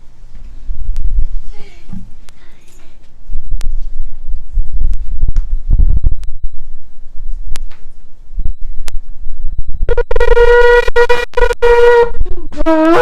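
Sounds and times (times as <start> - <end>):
low rumbling thumps: 3.2 - 10.4
shofar long blast: 9.9 - 13.0.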